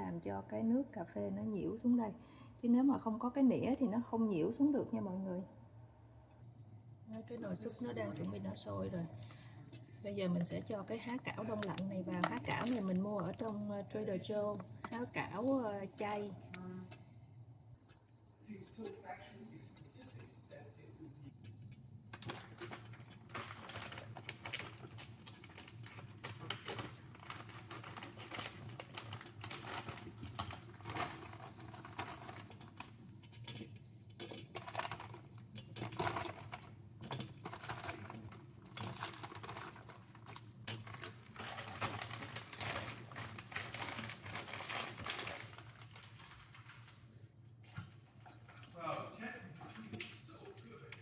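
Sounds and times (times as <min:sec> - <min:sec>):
steady low hum: 0:00.0 - 0:41.0
soup crackling and bubbling: 0:09.1 - 0:18.9, 0:21.1 - 0:48.8.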